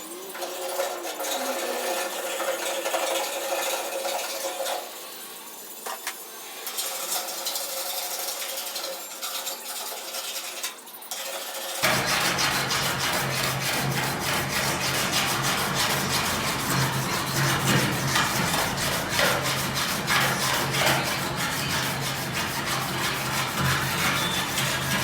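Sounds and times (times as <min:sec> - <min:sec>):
power tool scraping sheet metal: 0:00.0 - 0:25.0
steady low hum: 0:11.8 - 0:25.0.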